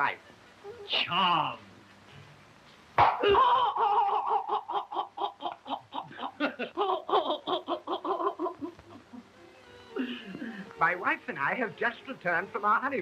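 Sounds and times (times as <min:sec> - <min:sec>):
person laughing high-pitched: 0:03.2 - 0:09.3.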